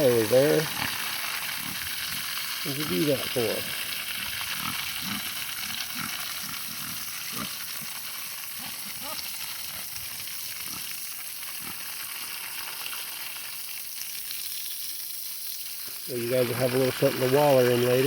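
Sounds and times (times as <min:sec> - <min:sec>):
pigs grunting: 0:00.0 - 0:11.9
garden hose spraying water: 0:00.0 - 0:18.0.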